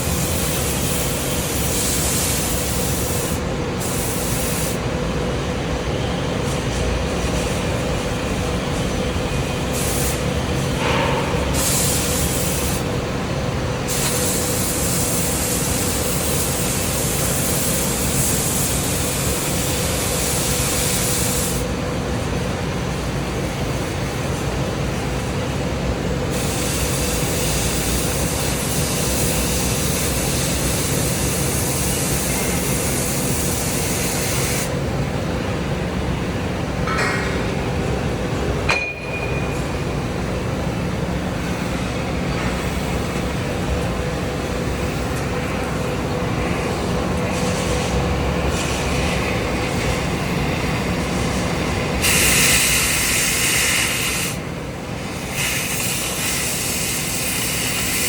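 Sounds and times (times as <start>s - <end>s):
cutting torch hissing: 11.5s - 12.8s, 50.6s - 54.4s, 55.1s - 58.0s
sharp metallic clink: 38.7s - 39.7s.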